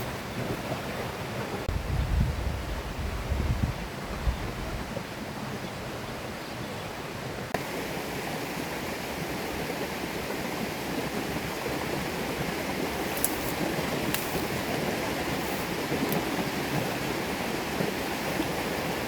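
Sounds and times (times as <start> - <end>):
river flowing: 5.2 - 19.0.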